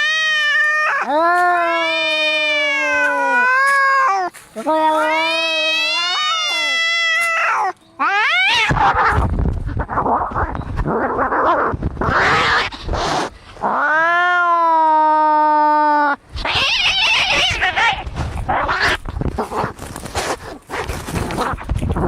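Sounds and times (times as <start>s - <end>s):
cat yowling: 0.0s - 9.2s, 11.1s - 19.0s
cats hissing and spitting: 2.3s - 13.8s, 16.4s - 22.0s.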